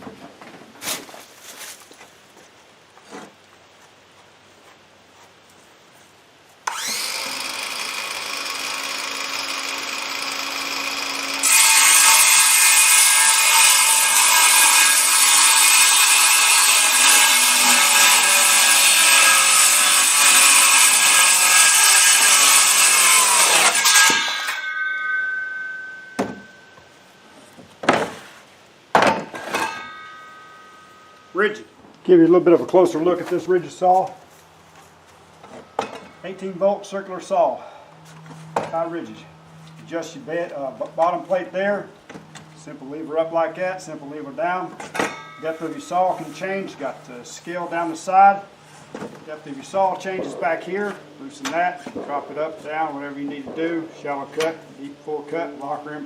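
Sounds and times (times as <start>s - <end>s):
circular saw cutting wood: 6.6s - 26.5s, 29.4s - 31.6s, 43.2s - 48.5s
circular saw whining: 6.7s - 27.1s, 29.4s - 31.6s.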